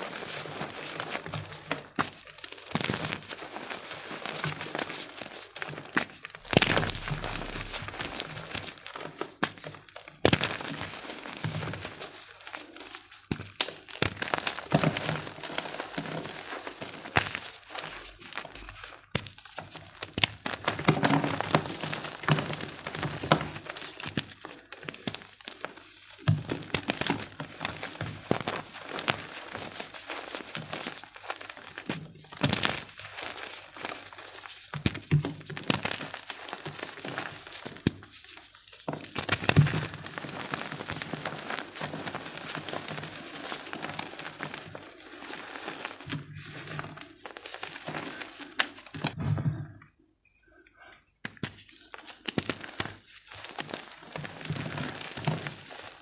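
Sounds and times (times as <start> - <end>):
chalk being crushed by hand: 0.1 - 49.2.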